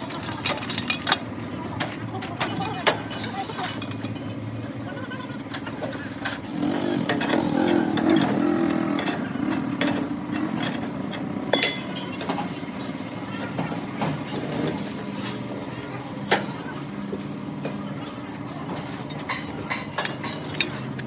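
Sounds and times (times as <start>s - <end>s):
engine running: 0.0s - 21.0s
metallic clinks and knocks: 9.8s - 12.4s.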